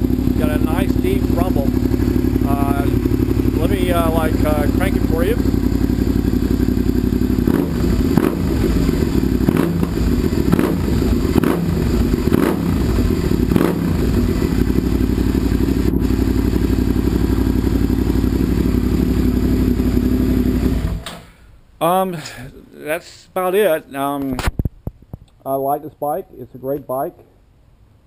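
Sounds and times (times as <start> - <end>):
motorcycle engine idling and revving: 0.0 - 21.1.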